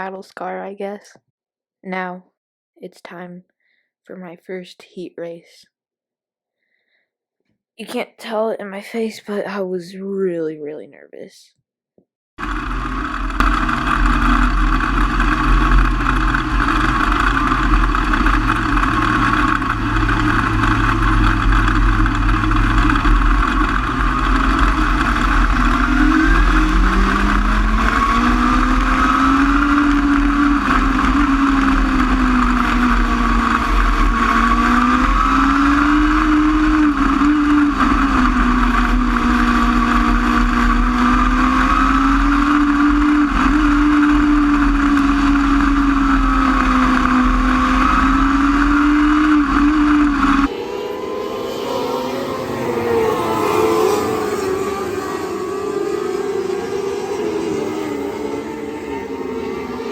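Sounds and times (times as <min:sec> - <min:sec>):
race car engines running hard: 0:12.4 - 0:59.9.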